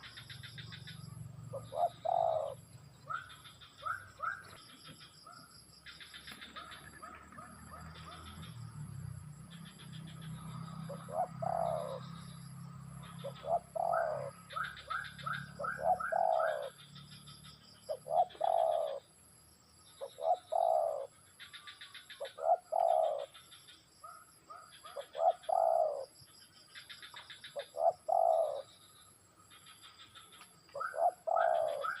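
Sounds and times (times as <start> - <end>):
dove cooing: 0.0 - 5.4, 6.3 - 8.4, 9.8 - 12.4, 13.0 - 17.1, 17.9 - 19.1, 20.0 - 26.2, 27.1 - 28.9, 30.7 - 32.0
birds chirping: 0.0 - 19.2, 19.8 - 32.0.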